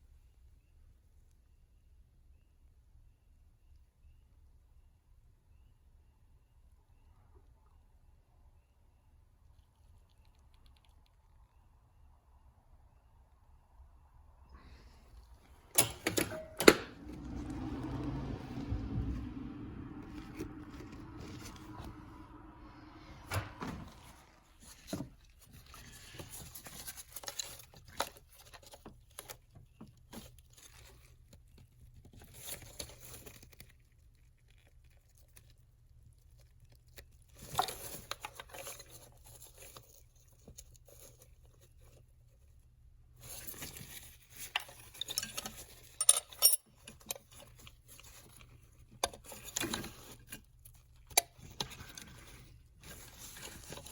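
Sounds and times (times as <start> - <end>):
low hum: 14.5 - 24.8
rustling: 14.5 - 53.9.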